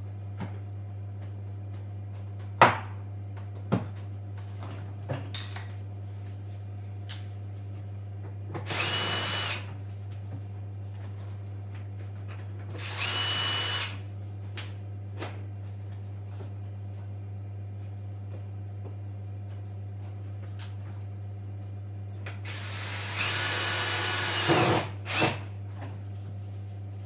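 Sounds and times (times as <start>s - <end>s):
cordless drill motor whine: 8.6s - 9.8s, 12.7s - 14.1s, 22.4s - 25.6s.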